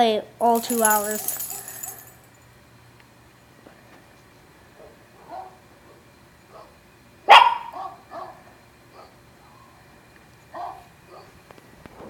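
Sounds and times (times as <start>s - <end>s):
dogs barking: 4.8s - 5.6s, 6.5s - 9.2s, 10.6s - 11.4s.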